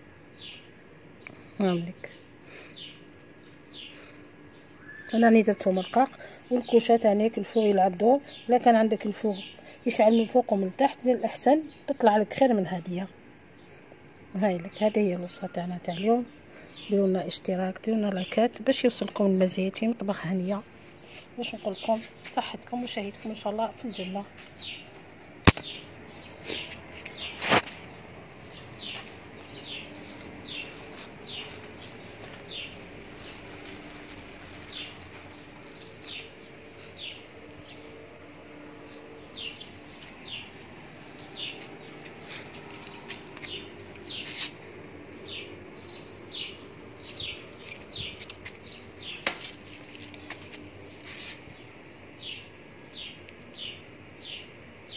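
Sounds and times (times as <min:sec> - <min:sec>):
small bird chirping: 0:00.4 - 0:06.8, 0:28.4 - 0:38.0
sharp click: 0:25.4 - 0:25.8.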